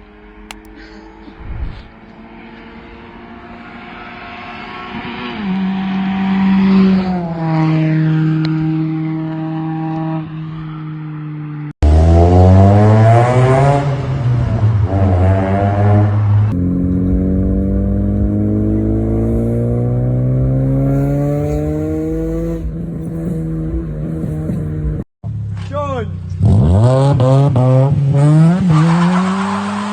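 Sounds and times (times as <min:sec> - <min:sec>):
car engine idling and revving: 0:00.0 - 0:29.9.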